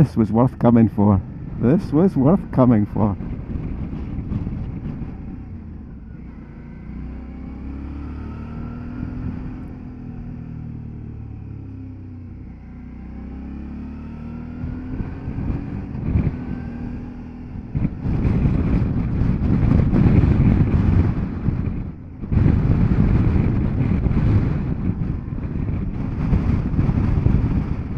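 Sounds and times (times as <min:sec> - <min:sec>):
wind noise on microphone: 0:00.0 - 0:06.8, 0:14.4 - 0:27.9
motorcycle engine running: 0:00.6 - 0:27.9.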